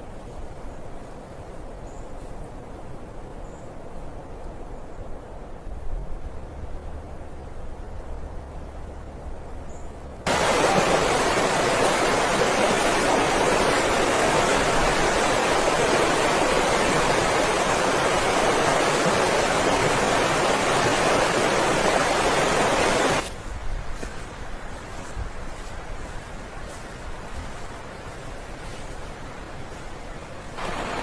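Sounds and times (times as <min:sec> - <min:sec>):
blizzard wind rushing: 0:10.3 - 0:23.8, 0:30.3 - 0:31.0.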